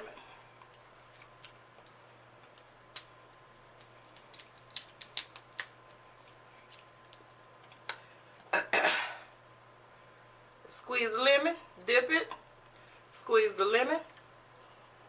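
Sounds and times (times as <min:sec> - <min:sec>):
faint steady hum: 0:00.0 - 0:15.0
chewing clicks and smacks: 0:00.4 - 0:03.1, 0:03.8 - 0:08.0.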